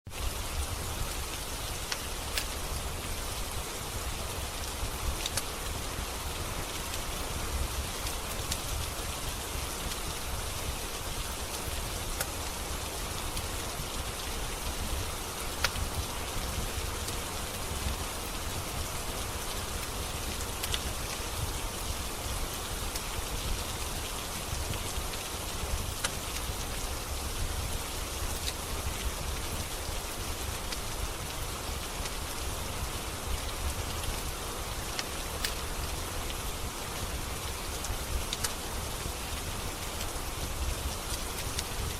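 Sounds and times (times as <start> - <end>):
steady rain: 0.1 - 41.9
wood fire crackling pops: 1.8 - 2.6, 5.2 - 5.5, 26.0 - 26.5.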